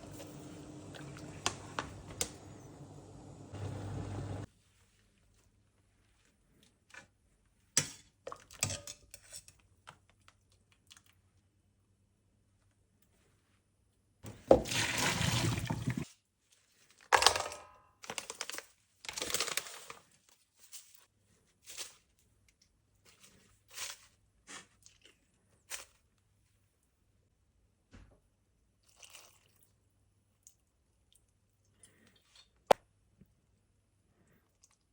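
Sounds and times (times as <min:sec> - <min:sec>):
water pouring: 0:00.0 - 0:04.5, 0:14.5 - 0:16.1.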